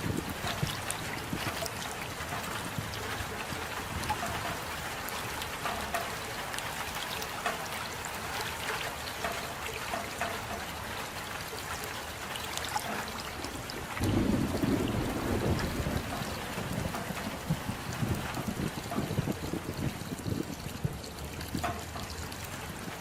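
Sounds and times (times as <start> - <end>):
steady rain: 0.0 - 23.0
thunder rumble: 13.5 - 20.6.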